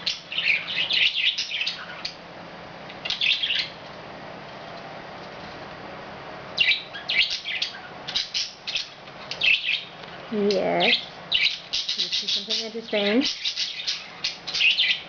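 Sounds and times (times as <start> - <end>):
budgerigars chirping and chattering: 0.0 - 2.2, 3.0 - 3.8, 6.6 - 15.0.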